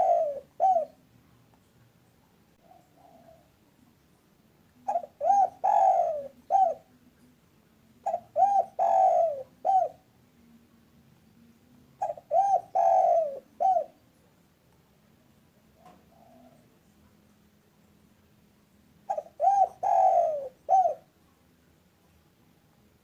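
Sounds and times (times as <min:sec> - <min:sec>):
dove cooing: 0:00.0 - 0:01.1, 0:02.6 - 0:03.6, 0:04.8 - 0:07.1, 0:08.0 - 0:10.1, 0:12.0 - 0:14.0, 0:15.6 - 0:16.8, 0:19.0 - 0:21.2.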